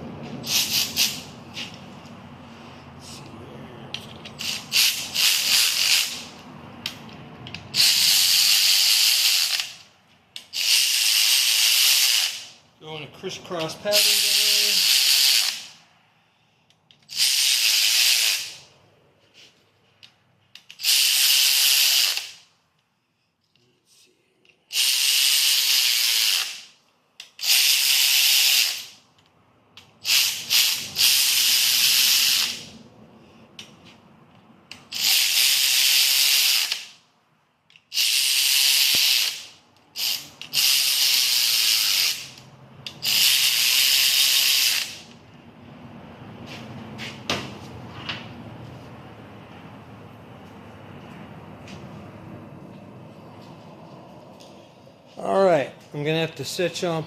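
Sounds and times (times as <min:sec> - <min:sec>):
air ratchet hissing: 0:00.4 - 0:01.8, 0:04.3 - 0:06.4, 0:07.5 - 0:12.6, 0:13.9 - 0:15.8, 0:16.9 - 0:18.7, 0:20.6 - 0:22.4, 0:24.7 - 0:29.0, 0:29.8 - 0:32.7, 0:34.7 - 0:37.0, 0:37.7 - 0:45.2.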